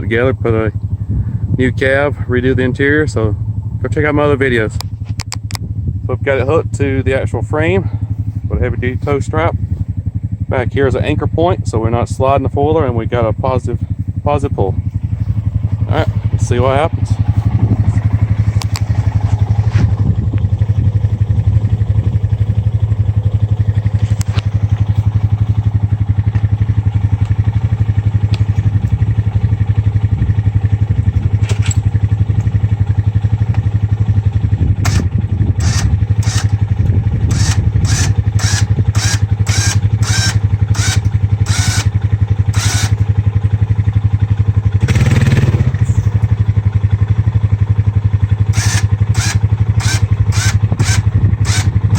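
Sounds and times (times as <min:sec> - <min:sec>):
atv engine running: 0:00.0 - 0:51.9
sharp clicks: 0:04.8 - 0:05.6, 0:18.5 - 0:18.9, 0:34.8 - 0:43.1, 0:48.5 - 0:51.9
winch pulling: 0:34.8 - 0:43.1, 0:48.5 - 0:51.9.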